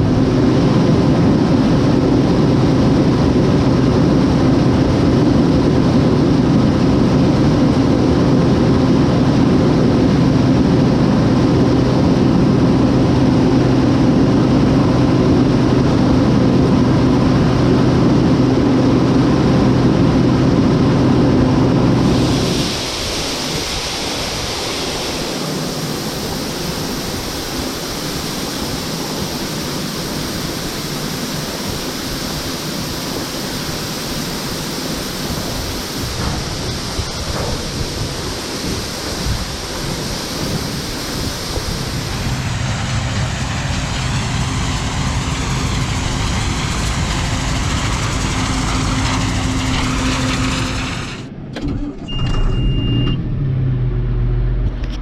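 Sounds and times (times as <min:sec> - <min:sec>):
steady rushing noise: 0:00.0 - 0:51.5
engine running: 0:00.0 - 0:55.0
short high beep: 0:52.0 - 0:53.3.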